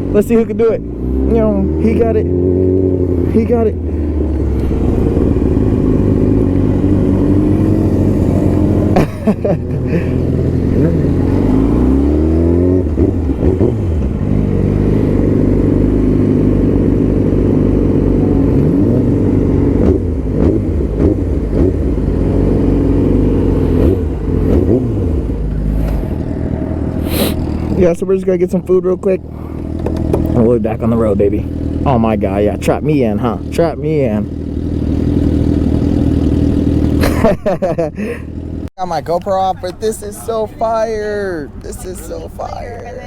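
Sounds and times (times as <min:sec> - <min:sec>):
motorcycle engine accelerating: 0:00.0 - 0:38.7.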